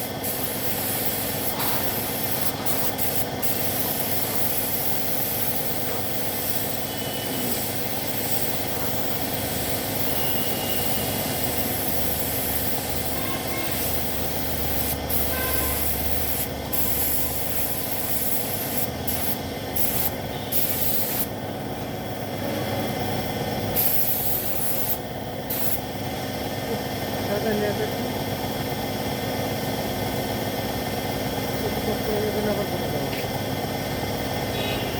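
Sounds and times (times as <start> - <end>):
paint spray gun hissing: 0.0 - 21.4, 23.8 - 25.9
steady hum: 0.0 - 34.9.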